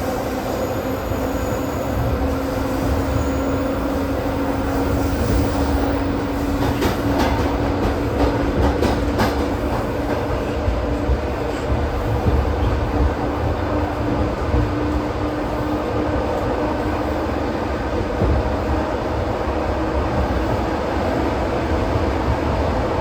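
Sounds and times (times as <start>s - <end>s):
train rumble and hum: 0.0s - 23.0s.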